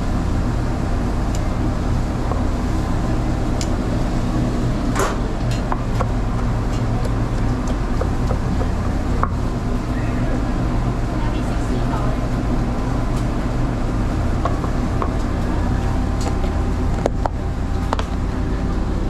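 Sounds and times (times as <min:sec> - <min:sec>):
low mechanical drone: 0:00.0 - 0:19.0.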